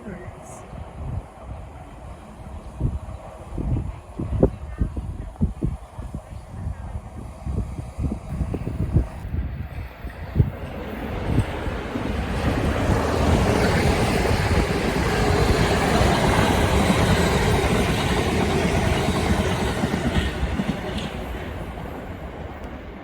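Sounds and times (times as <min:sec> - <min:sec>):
passenger train passing: 0:00.0 - 0:23.0.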